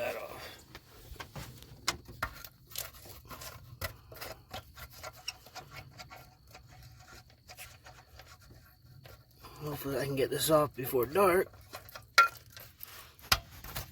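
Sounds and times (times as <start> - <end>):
tool scraping: 0.8 - 9.6.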